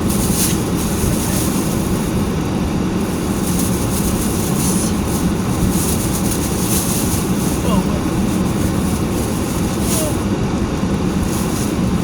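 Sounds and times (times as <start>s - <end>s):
car heater blower rushing: 0.0s - 12.0s.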